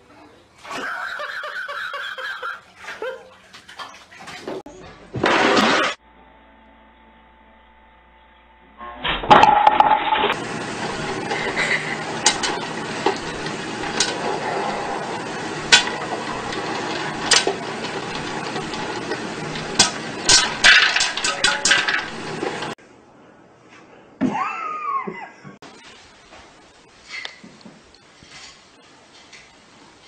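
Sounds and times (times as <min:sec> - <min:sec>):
popcorn popping: 0:09.3 - 0:22.7
steady sizzling hiss: 0:25.6 - 0:30.0.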